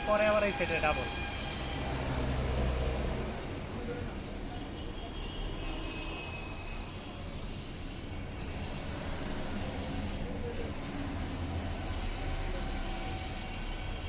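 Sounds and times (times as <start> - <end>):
aerosol spray can hissing: 6.8 - 14.0.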